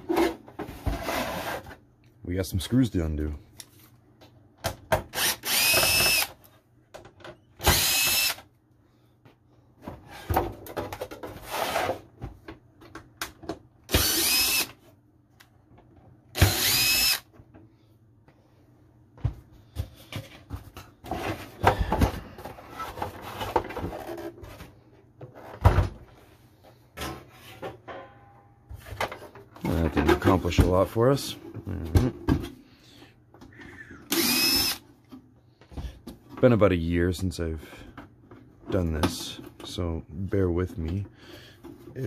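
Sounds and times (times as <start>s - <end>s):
power drill spinning: 5.1s - 6.4s, 7.6s - 8.4s, 13.9s - 14.8s, 16.3s - 17.3s, 34.0s - 34.8s.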